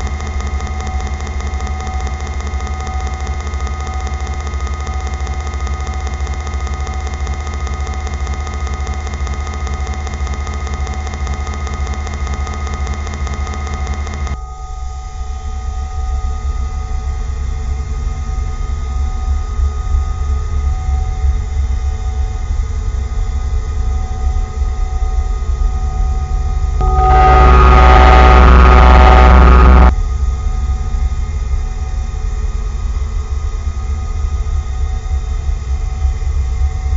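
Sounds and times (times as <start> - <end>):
engine humming: 26.8 - 29.9.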